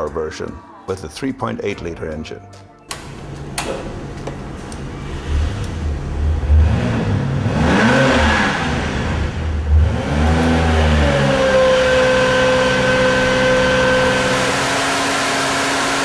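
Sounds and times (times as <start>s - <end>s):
car engine revving: 4.9s - 16.0s.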